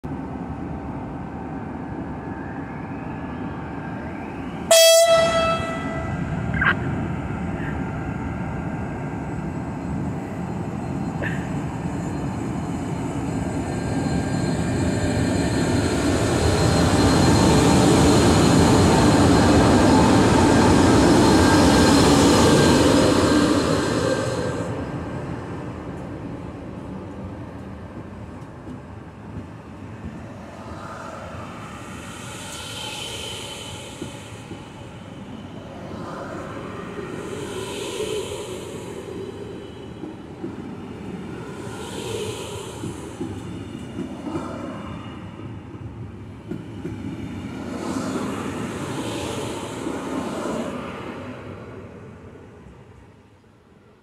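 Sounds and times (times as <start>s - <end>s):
passing train rumble and hiss: 0.0s - 54.0s
locomotive air horn blast: 4.7s - 6.4s.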